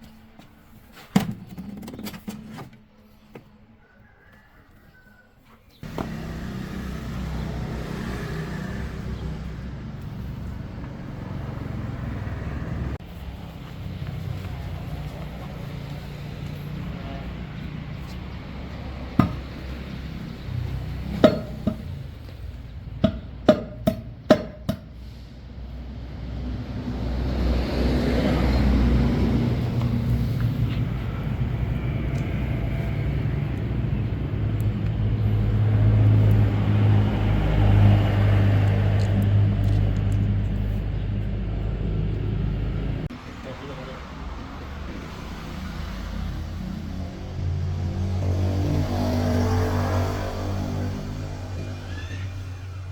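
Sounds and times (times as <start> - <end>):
truck engine running: 5.8 - 49.7.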